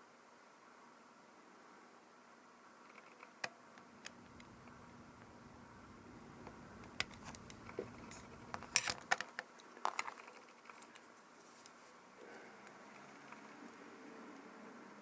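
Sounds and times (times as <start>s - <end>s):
small metal parts clinking: 7.0s - 9.2s.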